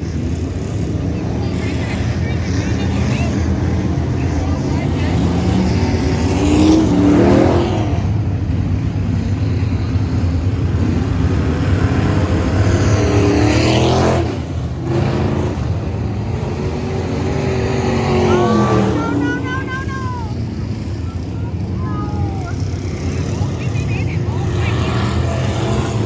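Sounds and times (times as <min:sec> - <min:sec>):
race car engine revving: 0:00.0 - 0:26.0.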